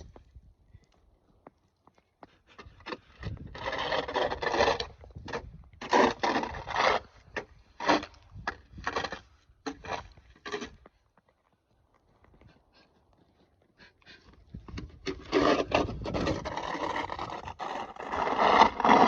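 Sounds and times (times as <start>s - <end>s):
snow shovel scraping snow: 3.0s - 10.8s, 15.1s - 19.0s.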